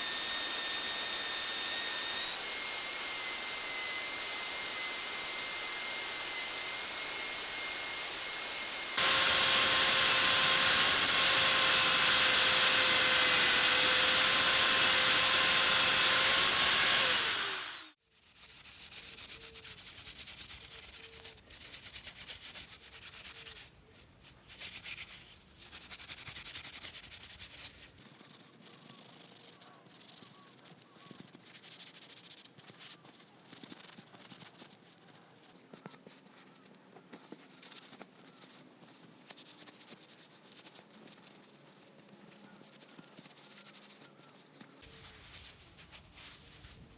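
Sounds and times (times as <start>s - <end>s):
rubbing and scraping strokes: 0.0s - 9.1s, 9.8s - 46.9s
electric power tool whining: 0.0s - 18.0s, 28.0s - 44.8s.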